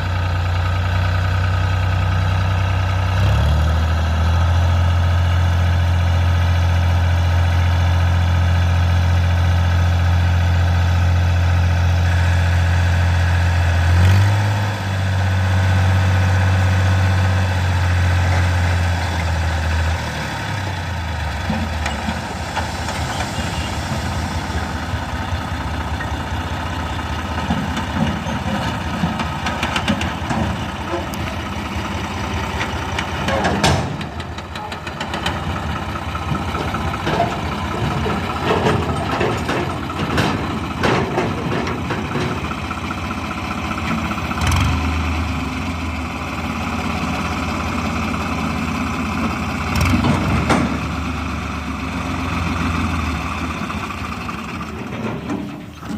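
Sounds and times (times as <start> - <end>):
diesel engine idling: 0.0 - 55.9
voices talking: 22.8 - 25.1.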